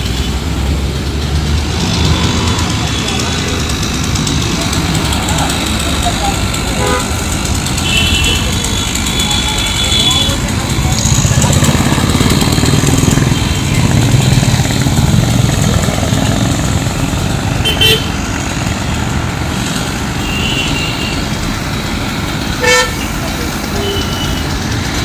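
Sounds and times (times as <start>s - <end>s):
motorcycle and car engines: 0.0s - 25.0s
vehicle horn toots: 6.8s - 7.2s, 7.8s - 10.5s, 17.6s - 18.1s, 22.6s - 24.5s.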